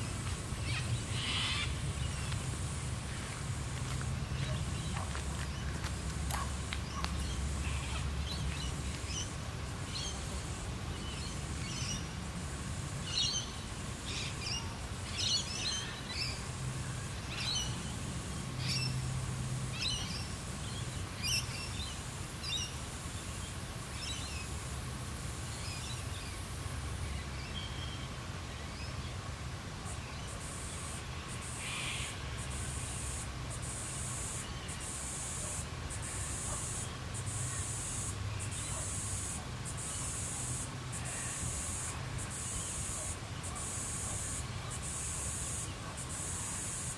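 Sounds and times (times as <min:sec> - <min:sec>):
steady high hiss: 0:00.0 - 0:46.9.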